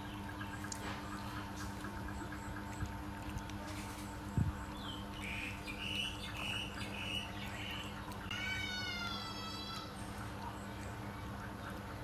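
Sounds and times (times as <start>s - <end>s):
bird chirping: 4.5s - 9.1s.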